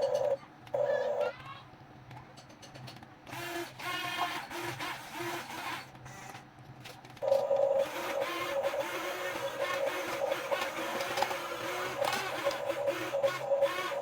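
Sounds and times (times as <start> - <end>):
electric motors and gearboxes whining: 3.3 - 6.4, 7.2 - 14.0.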